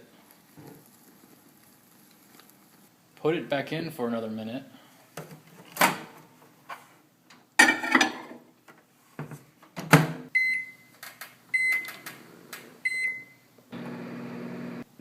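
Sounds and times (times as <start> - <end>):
microwave beeping: 10.4 - 14.8.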